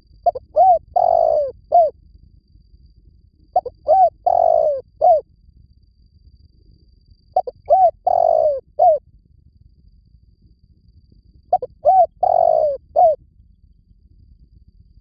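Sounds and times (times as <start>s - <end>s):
dove cooing: 0.2s - 1.9s, 3.6s - 5.2s, 7.4s - 9.0s, 11.5s - 13.2s.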